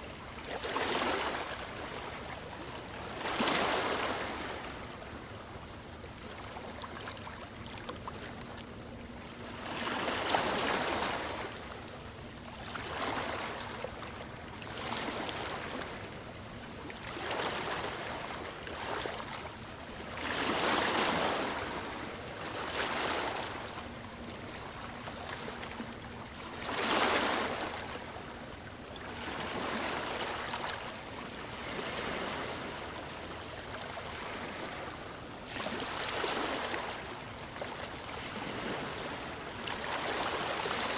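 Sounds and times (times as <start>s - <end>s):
small waves washing: 17.0s - 40.9s.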